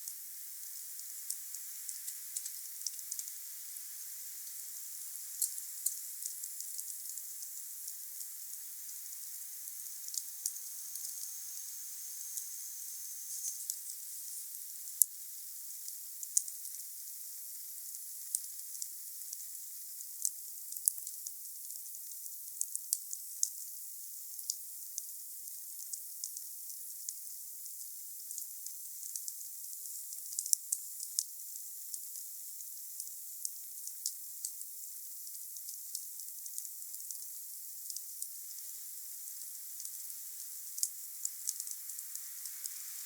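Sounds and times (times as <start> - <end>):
wood fire hissing: 0.0 - 14.9, 38.2 - 43.0.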